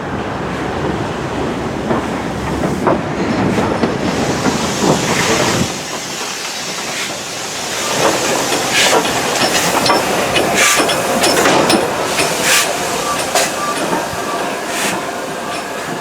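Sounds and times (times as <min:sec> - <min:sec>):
rail clatter: 0:00.0 - 0:16.0
steam locomotive rumble: 0:00.0 - 0:16.0
steam hissing in sharp bursts: 0:03.9 - 0:16.0.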